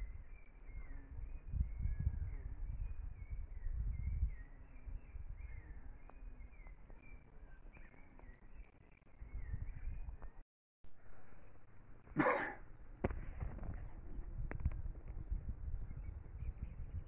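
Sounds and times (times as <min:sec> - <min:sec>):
birds chirping: 0:00.0 - 0:10.4
wind rumble on microphone: 0:00.0 - 0:10.4, 0:12.6 - 0:17.0.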